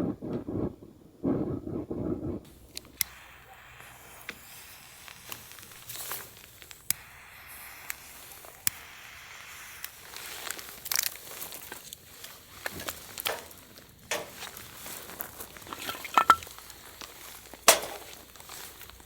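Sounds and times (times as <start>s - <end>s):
faint steady hiss: 0.4s - 19.0s
sharp clicks and pops: 2.4s - 19.0s
rustling: 9.9s - 19.0s.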